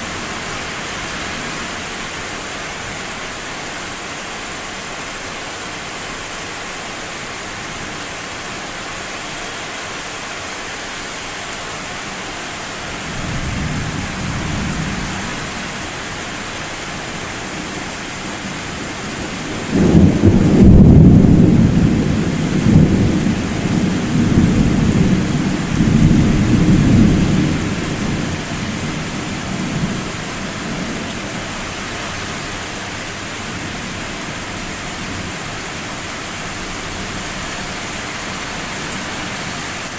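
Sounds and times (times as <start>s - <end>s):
rain hissing: 0.0s - 39.9s
distant thunder rumble: 17.6s - 31.1s
loud thunderclap: 19.4s - 28.3s.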